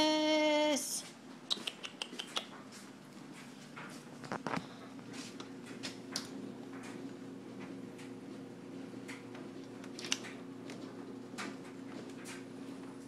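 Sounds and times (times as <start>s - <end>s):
faint steady hum: 0.0s - 13.0s
soft rustles: 2.6s - 6.0s.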